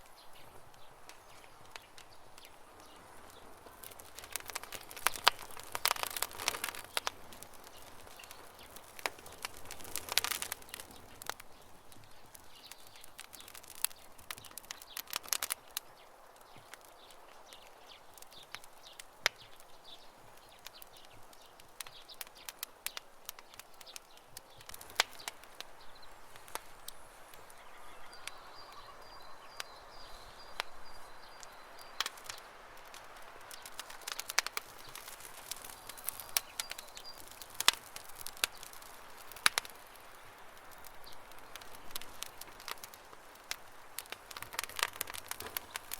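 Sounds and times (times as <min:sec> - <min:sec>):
campfire crackling and popping: 0:00.0 - 0:45.9
faint birds chirping: 0:00.0 - 0:45.9.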